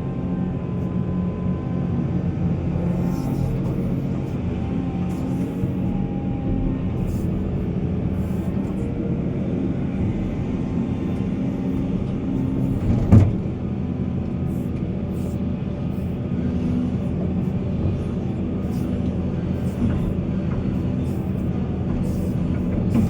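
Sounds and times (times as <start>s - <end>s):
heavy diesel machinery running: 0.0s - 23.0s.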